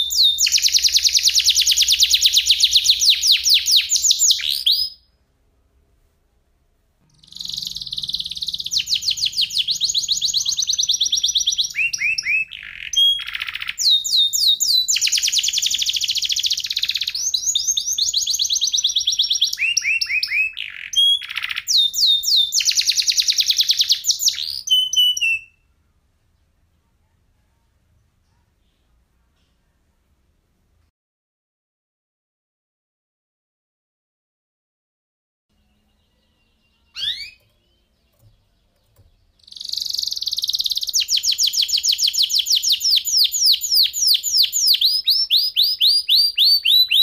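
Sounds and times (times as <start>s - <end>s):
canary singing trills: 0.0s - 5.1s, 7.0s - 25.7s, 35.5s - 47.0s.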